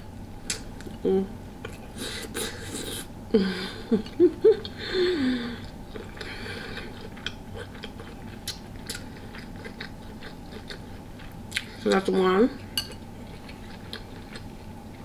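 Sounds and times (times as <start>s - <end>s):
person chewing: 5.6s - 12.0s, 12.6s - 15.0s.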